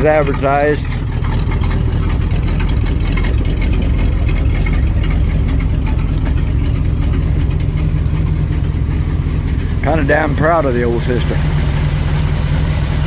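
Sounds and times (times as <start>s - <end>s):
truck engine idling loudly: 0.0s - 13.0s.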